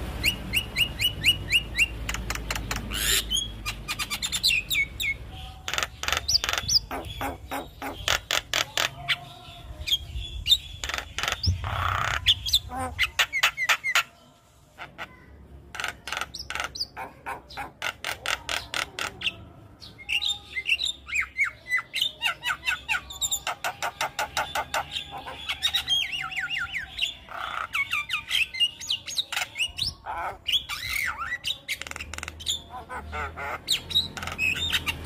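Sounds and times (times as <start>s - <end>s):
myna clicking and squawking: 1.8s - 4.6s, 5.6s - 9.2s, 10.8s - 14.1s, 14.8s - 19.4s, 29.1s - 35.0s.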